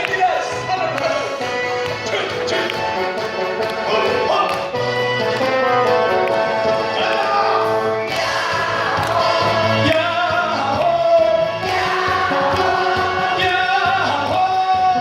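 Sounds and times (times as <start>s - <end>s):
pop backing track with beat: 0.0s - 15.0s
many voices singing in unison: 6.9s - 14.5s.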